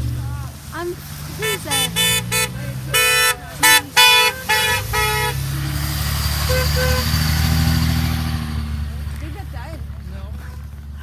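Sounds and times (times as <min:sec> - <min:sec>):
diesel engine drone: 0:00.0 - 0:11.0
truck horn honking: 0:01.3 - 0:07.8.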